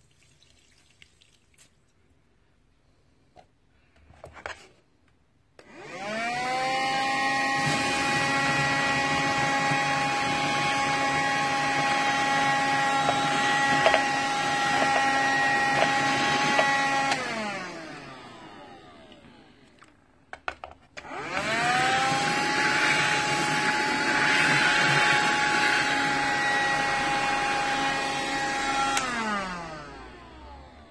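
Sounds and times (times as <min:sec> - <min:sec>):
handheld vacuum cleaner running: 0:05.6 - 0:19.7, 0:21.0 - 0:30.9.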